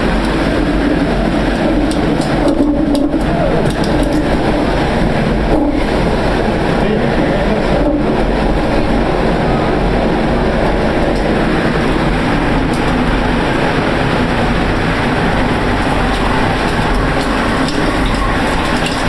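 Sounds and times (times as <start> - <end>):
faint clicks and rattles: 0.0 - 6.3, 10.8 - 19.0
tornado roaring: 0.0 - 19.0.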